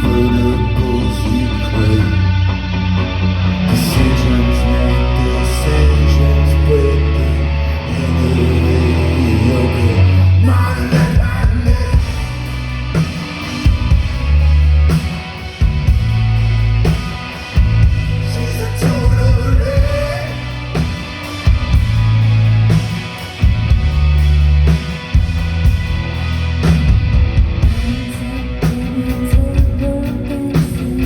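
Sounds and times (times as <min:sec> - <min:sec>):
person singing: 0:00.0 - 0:03.0, 0:03.6 - 0:12.5, 0:18.2 - 0:21.0, 0:27.6 - 0:31.0
bass: 0:00.0 - 0:31.0
drums: 0:00.0 - 0:31.0
electric guitar: 0:00.0 - 0:31.0.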